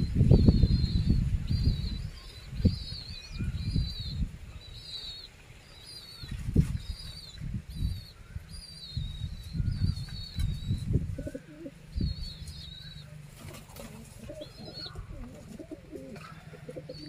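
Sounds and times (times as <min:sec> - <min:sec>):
small bird chirping: 0:00.0 - 0:16.1
low thumps and rustles: 0:06.3 - 0:07.6.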